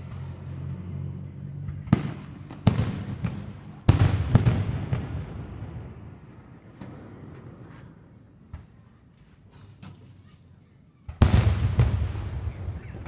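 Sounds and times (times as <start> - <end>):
fireworks bangs echoing: 1.8 - 7.6, 11.1 - 13.0
small fireworks pops: 6.7 - 10.3.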